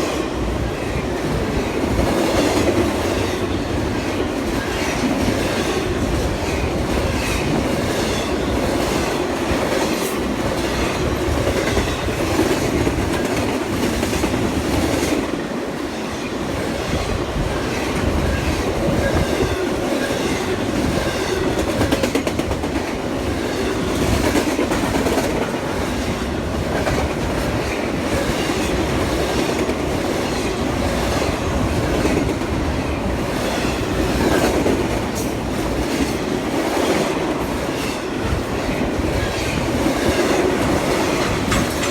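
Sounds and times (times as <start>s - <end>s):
wheels clicking over rail joints: 39.3s - 41.9s.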